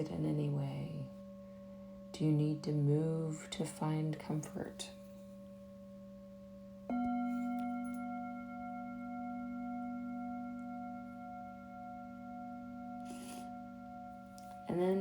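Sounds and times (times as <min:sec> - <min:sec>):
singing bowls ringing: 0:00.0 - 0:02.7, 0:04.9 - 0:15.0
higher-pitched bowl struck: 0:05.8 - 0:15.0.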